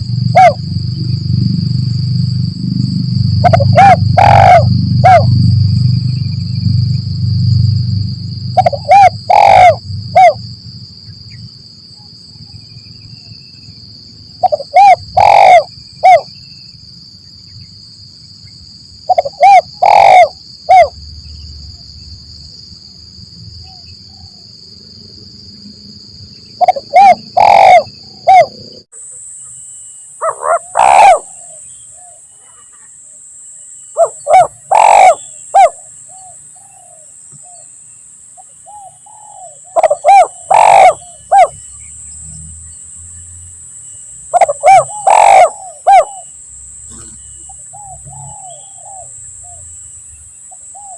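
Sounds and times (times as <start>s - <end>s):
doves cooing: 0.0s - 1.6s, 2.5s - 5.4s, 8.6s - 10.4s, 14.4s - 16.3s, 19.1s - 21.0s, 26.6s - 28.8s, 30.2s - 32.9s, 34.0s - 37.6s, 38.7s - 41.6s, 44.3s - 49.6s
high-pitched buzz: 40.9s - 50.3s.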